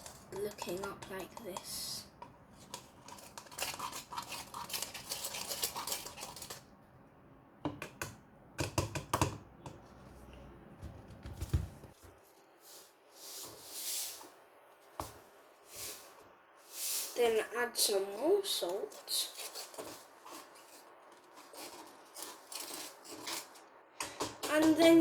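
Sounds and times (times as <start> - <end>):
spoon scraping in cup: 0.0 - 6.7, 18.6 - 24.8
taps and knocks: 7.7 - 9.8.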